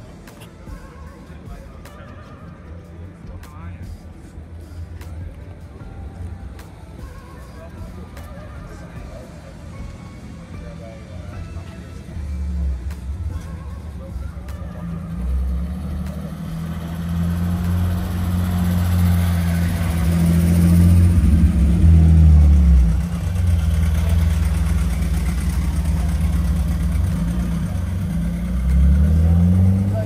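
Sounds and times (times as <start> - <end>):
car engine running: 9.1 - 30.0.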